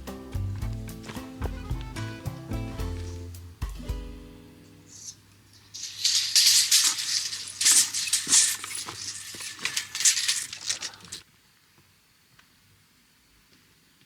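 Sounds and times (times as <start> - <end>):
rough scraping and rustling: 4.9 - 11.2.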